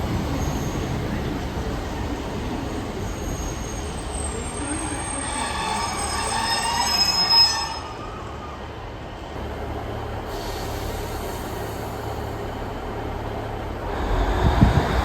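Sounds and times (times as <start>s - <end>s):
train rumble: 0.0s - 15.0s
train brakes squealing: 0.2s - 1.2s, 2.6s - 8.8s.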